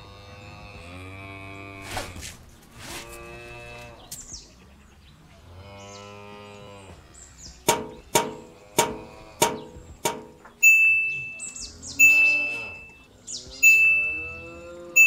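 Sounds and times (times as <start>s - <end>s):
cow mooing: 0.0s - 1.9s, 3.0s - 4.1s, 8.2s - 9.8s, 11.8s - 15.0s
ringing metallic knocks: 7.7s - 13.0s, 13.6s - 15.0s
bright chime tone: 10.6s - 13.0s, 13.6s - 14.5s.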